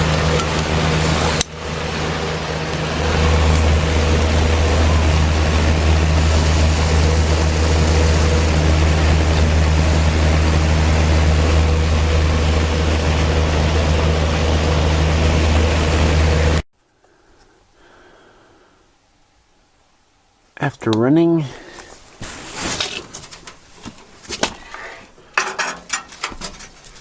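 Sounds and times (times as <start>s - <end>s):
air rushing from fan blades: 0.0s - 16.6s
box fan motor hum: 0.0s - 16.6s.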